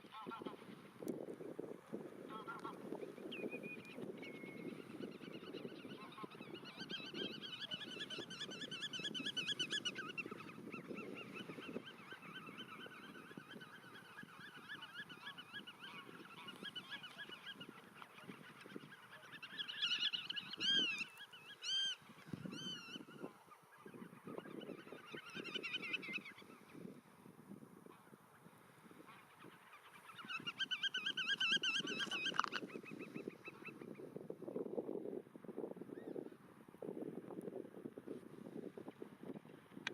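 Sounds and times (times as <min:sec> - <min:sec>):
godwits calling: 0:30.1 - 0:33.8.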